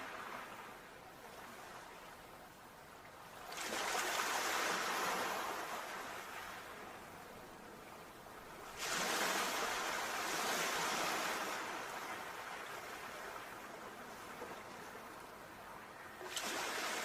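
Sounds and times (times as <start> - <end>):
sea waves breaking: 3.3 - 7.4, 8.5 - 17.0.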